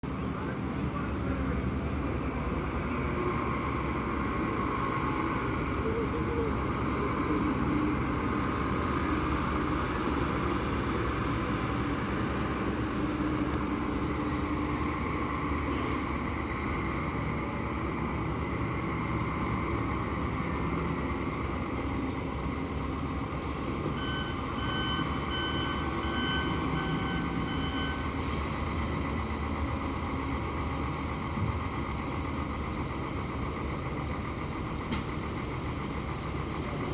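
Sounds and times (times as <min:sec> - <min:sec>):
heavy truck engine running: 0:00.0 - 0:36.9
reversing alarm beeps: 0:23.8 - 0:28.3.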